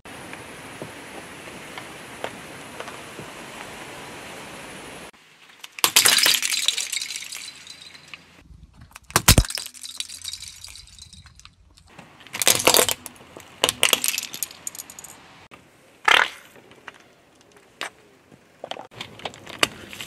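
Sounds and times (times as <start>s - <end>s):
tyre crushing plastic objects: 5.6s - 8.2s, 8.8s - 15.1s.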